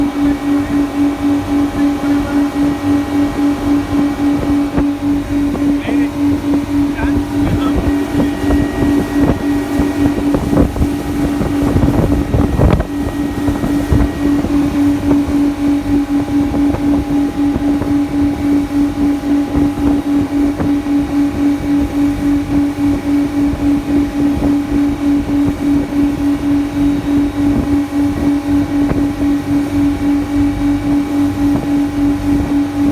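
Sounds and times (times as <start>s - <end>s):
boat engine humming: 0.0s - 32.9s
wind and water rumbling: 0.0s - 32.9s.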